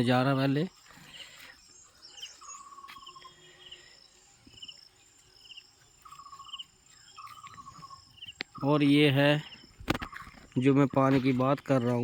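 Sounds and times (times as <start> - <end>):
insects chirping in short trills: 0.0 - 12.0.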